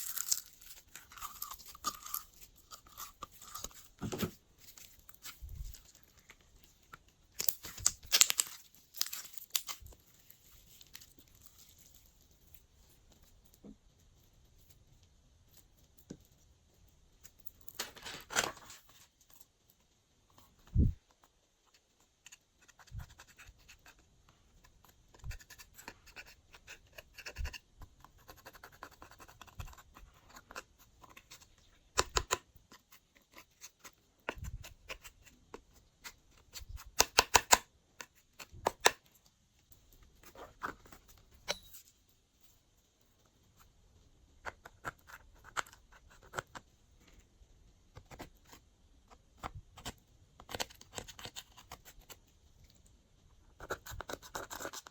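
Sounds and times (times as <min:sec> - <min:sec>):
slime crackling and squelching: 0:00.0 - 0:13.2.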